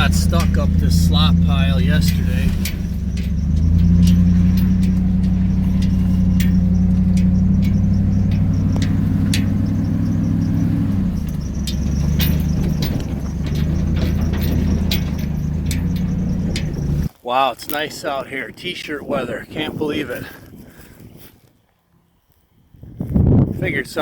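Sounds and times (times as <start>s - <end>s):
truck engine running: 0.0s - 17.1s
truck rattling and clicking: 0.0s - 17.1s.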